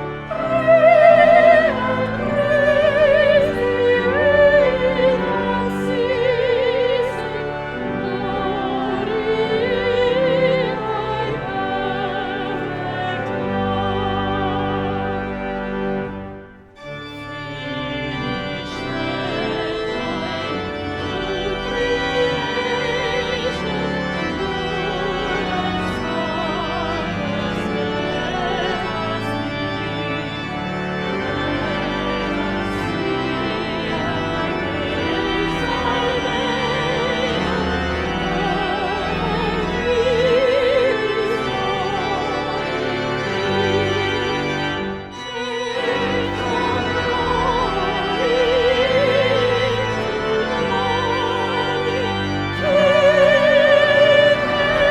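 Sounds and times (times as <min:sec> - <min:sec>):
church organ chords: 0:00.0 - 0:54.9
voices singing with vibrato: 0:00.2 - 0:07.4, 0:45.2 - 0:54.9.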